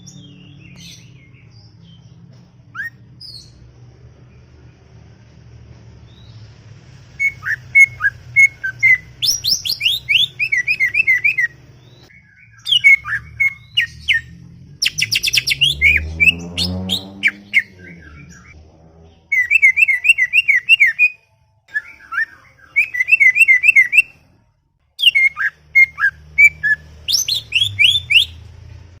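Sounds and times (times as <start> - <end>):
bird singing chattering song: 7.2 - 18.6, 19.3 - 24.2, 25.0 - 28.6.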